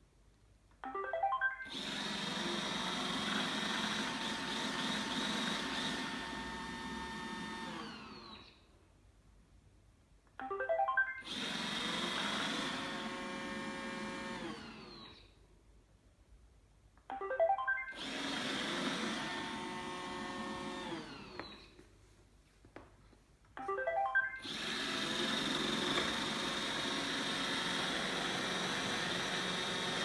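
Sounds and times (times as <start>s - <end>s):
robot vacuum tune: 0.9s - 8.2s, 10.4s - 15.0s, 17.1s - 21.6s, 23.6s - 30.0s
robot vacuum motors running: 1.7s - 8.4s, 11.2s - 15.2s, 18.0s - 21.7s, 24.4s - 30.0s.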